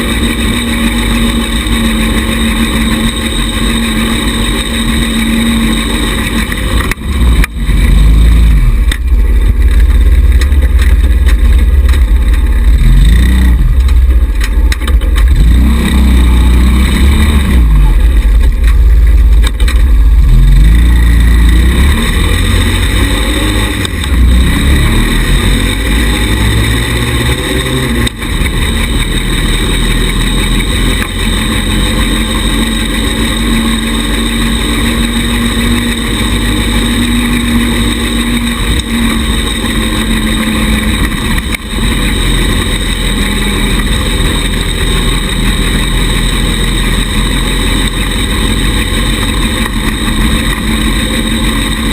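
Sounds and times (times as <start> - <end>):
small buggy engine running: 0.0 - 51.9.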